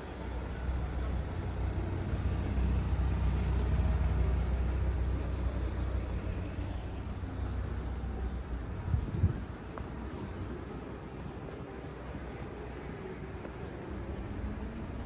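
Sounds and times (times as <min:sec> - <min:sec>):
car engine rumble passing: 0:00.0 - 0:09.1.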